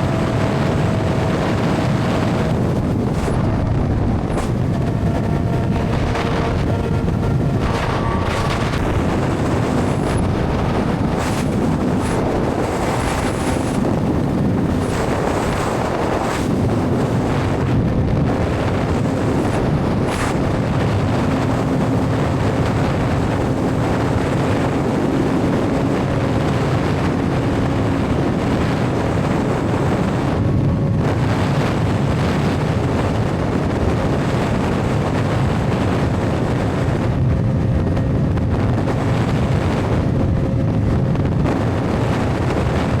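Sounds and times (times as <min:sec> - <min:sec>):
motorcycle engine cruising: 0:00.0 - 0:43.0
wind buffeting microphone: 0:00.0 - 0:43.0.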